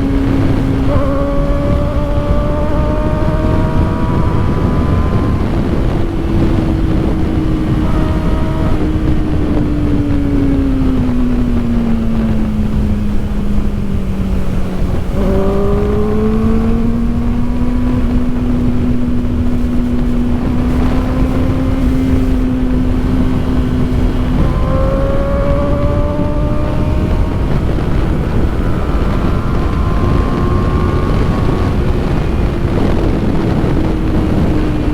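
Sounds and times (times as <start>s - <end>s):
motorcycle engine running: 0.0s - 34.9s
wind rush on microphone: 0.0s - 34.9s.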